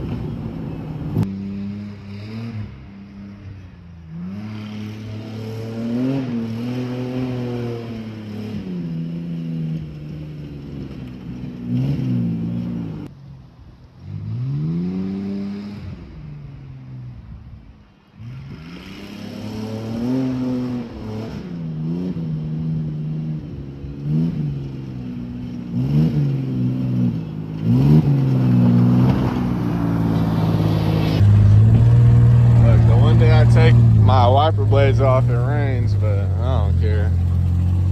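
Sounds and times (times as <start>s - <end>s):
truck engine revving roughly: 0.0s - 1.2s, 25.8s - 37.9s.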